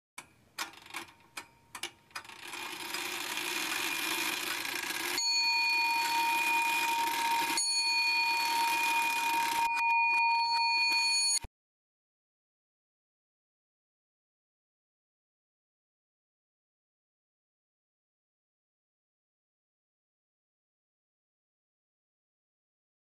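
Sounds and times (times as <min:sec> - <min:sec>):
clicks: 0:00.2 - 0:03.1
sharp irregular ticks: 0:01.7 - 0:05.2
bell-like ringing tone: 0:05.0 - 0:11.5.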